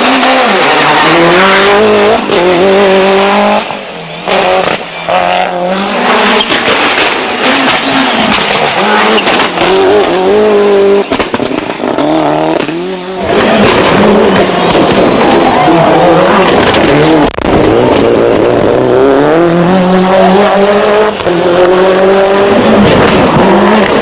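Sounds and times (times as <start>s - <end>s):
car engine revving: 0.0s - 24.0s
exhaust crackles and bangs: 6.4s - 10.2s, 11.0s - 12.0s, 13.3s - 15.5s, 16.3s - 18.8s, 22.8s - 24.0s.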